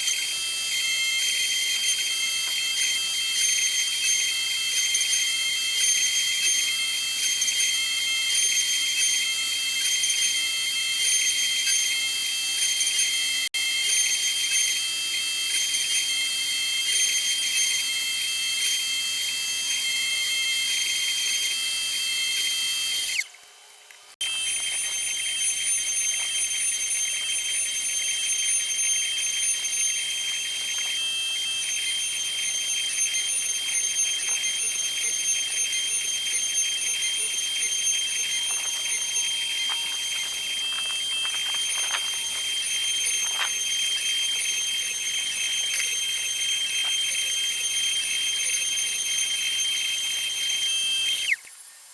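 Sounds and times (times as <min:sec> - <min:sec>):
router spindle whining: 0:00.0 - 0:23.4, 0:24.2 - 0:51.4.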